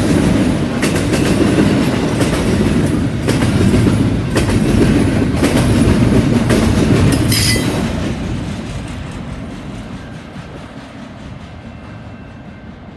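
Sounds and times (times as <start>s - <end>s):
train wheels clicking over rail joints: 0.0s - 12.1s
train rumble: 0.0s - 12.9s
metallic wheel squeal: 7.1s - 7.8s.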